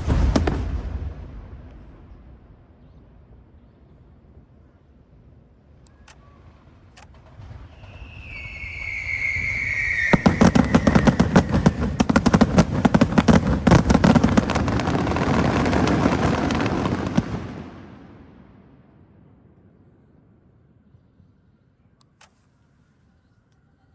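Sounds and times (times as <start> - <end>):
crackling firework bangs: 0.0 - 2.8, 7.1 - 19.4
firework whistle gliding down: 7.6 - 12.4.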